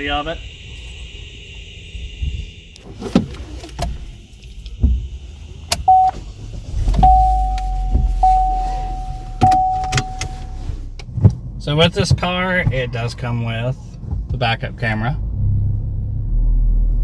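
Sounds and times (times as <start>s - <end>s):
car engine cranking and starting: 2.6s - 17.0s
clicks and knocks in car cabin: 6.8s - 13.0s
warning chime: 7.0s - 10.6s.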